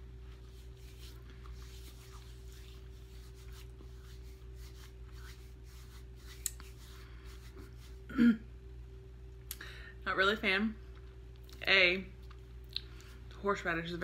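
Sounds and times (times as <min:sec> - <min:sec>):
low electrical hum: 0:00.0 - 0:14.0
crunching and chewing: 0:12.2 - 0:13.1.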